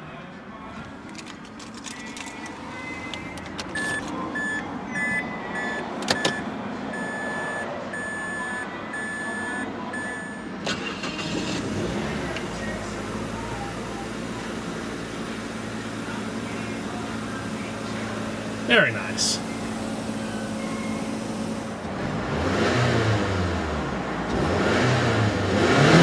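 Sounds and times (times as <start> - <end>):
car engine starting and idling: 0.8 - 26.0
car warning chime beeping: 2.7 - 11.2.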